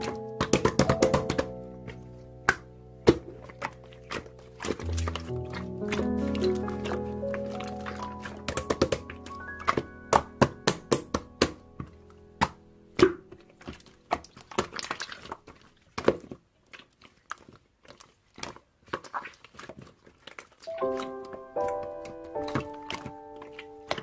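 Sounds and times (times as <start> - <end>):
music notes: 0.0 - 14.2, 20.7 - 24.0.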